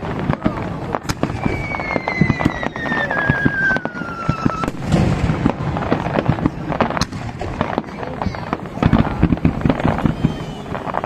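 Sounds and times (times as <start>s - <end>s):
fireworks crackling and banging: 0.0s - 11.0s
falling firework whistle: 1.0s - 5.3s, 9.6s - 11.0s.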